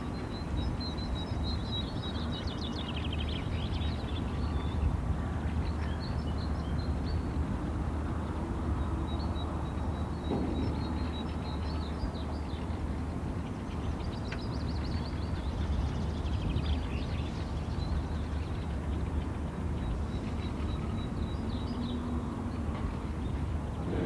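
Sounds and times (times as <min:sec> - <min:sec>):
wild birds chirping: 0:09.1 - 0:24.0
steady low rumble: 0:23.4 - 0:24.0.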